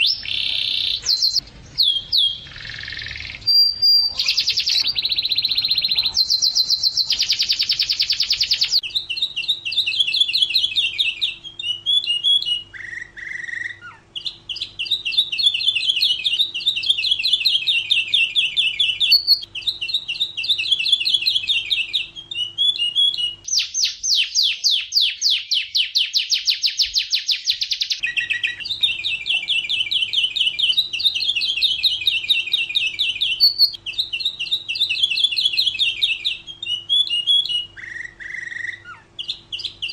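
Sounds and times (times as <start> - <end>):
faint low hum: 0.0 - 24.9
canary singing trills: 0.0 - 39.9.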